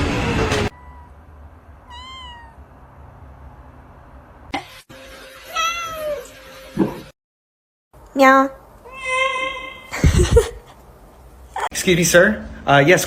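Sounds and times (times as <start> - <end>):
cat meowing: 0.7 - 1.2, 1.8 - 2.7, 5.5 - 6.3.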